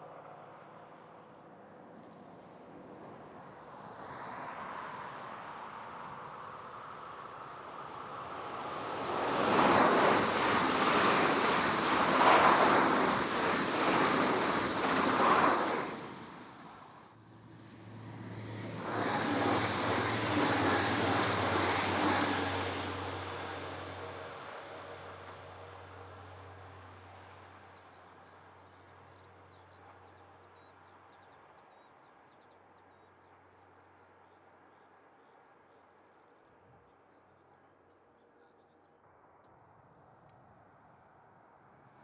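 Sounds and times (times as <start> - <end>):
train passing with rattling rumble: 2.8 - 31.4.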